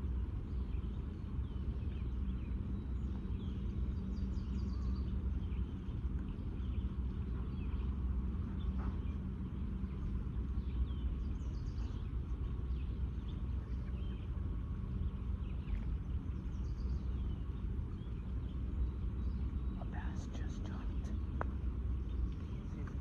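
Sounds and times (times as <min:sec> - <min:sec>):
low outdoor hum: 0:00.0 - 0:23.0
faint bird chirps: 0:15.0 - 0:23.0.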